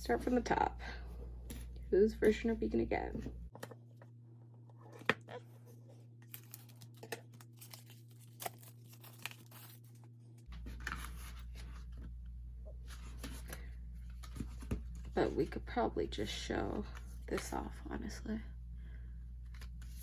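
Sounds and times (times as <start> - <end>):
plastic wrap tearing: 6.2 - 10.0.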